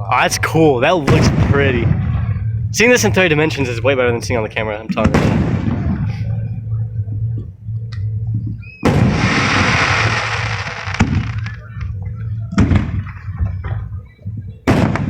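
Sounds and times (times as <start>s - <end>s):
low rumble: 0.0s - 15.0s
firework hiss: 8.9s - 11.6s
firework shells bursting: 8.9s - 11.6s.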